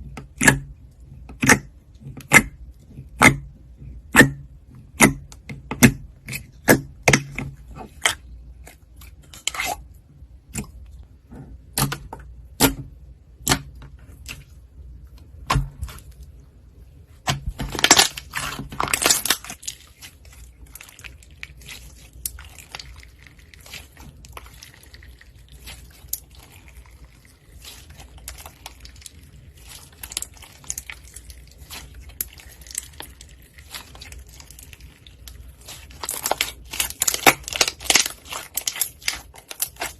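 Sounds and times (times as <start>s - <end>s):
slime squeezed popping and crackling: 17.4s - 39.9s.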